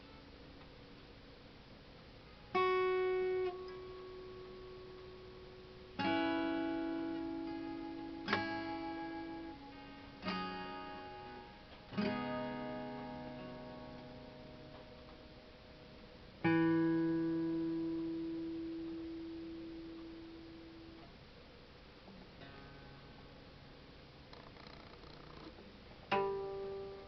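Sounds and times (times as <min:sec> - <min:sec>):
acoustic guitar chords strummed: 0:02.3 - 0:21.2, 0:22.0 - 0:27.0.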